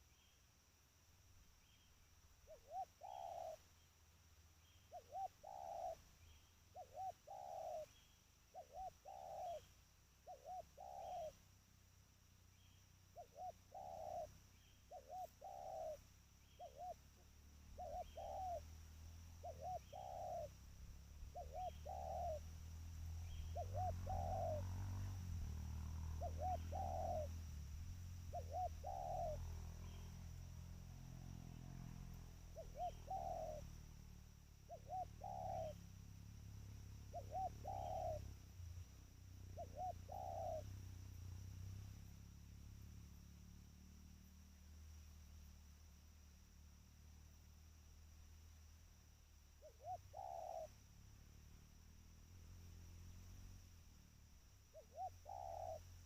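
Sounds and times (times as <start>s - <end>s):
dove cooing: 2.4s - 3.7s, 4.7s - 11.4s, 13.1s - 38.4s, 39.3s - 41.0s, 49.6s - 50.9s, 54.7s - 56.0s.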